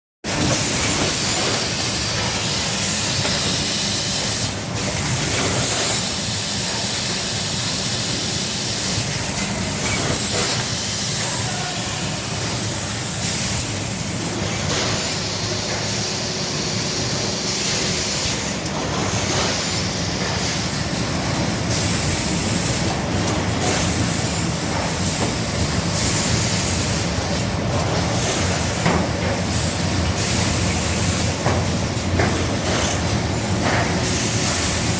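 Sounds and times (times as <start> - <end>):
machine mechanical hum: 0.3 - 34.9
airy machine hiss: 10.0 - 34.9.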